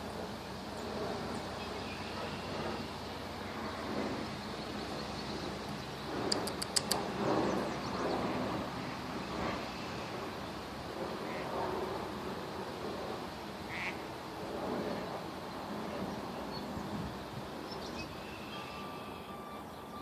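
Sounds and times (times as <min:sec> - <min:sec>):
outdoor background noise: 0:00.0 - 0:20.0
sharp clicks: 0:06.3 - 0:07.1.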